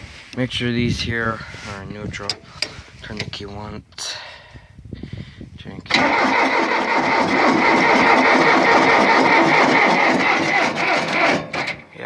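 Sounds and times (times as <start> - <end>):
starter motor cranking engine: 5.9 - 11.9.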